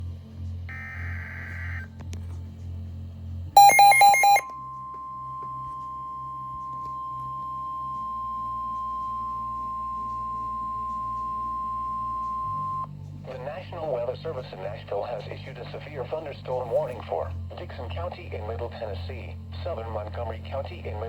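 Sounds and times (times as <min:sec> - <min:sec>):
steady warning alarm tone: 0:00.7 - 0:01.9, 0:03.6 - 0:04.5
rapid electronic beeps: 0:03.6 - 0:04.4.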